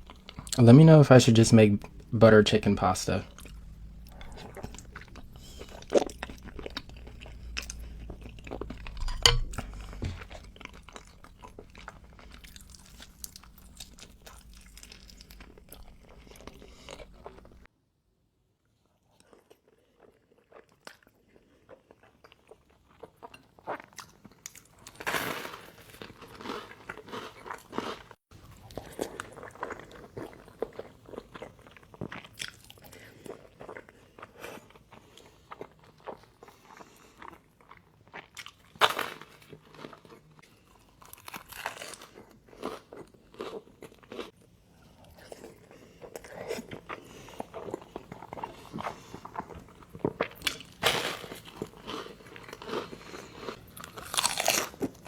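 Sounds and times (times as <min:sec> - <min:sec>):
person biting and chewing food: 0:03.2 - 0:17.6, 0:37.6 - 0:44.3, 0:44.9 - 0:55.0.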